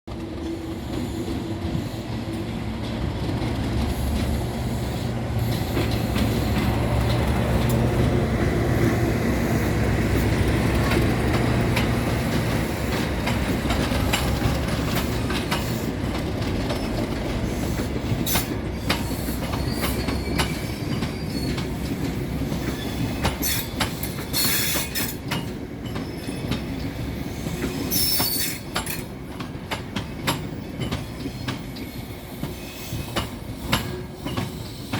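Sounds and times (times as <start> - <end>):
diesel locomotive engine droning: 0.1 - 34.9
wheels clicking over rail joints: 5.4 - 34.9
high wheel squeals: 16.8 - 21.9, 27.7 - 29.0.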